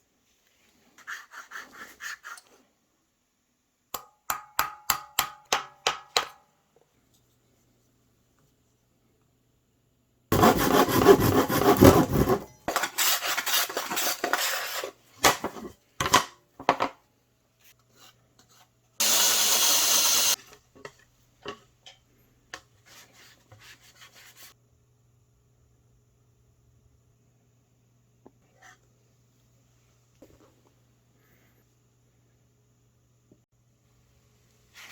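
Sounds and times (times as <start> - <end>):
rasping on wood: 10.3 - 12.4
loud hiss: 19.0 - 20.4.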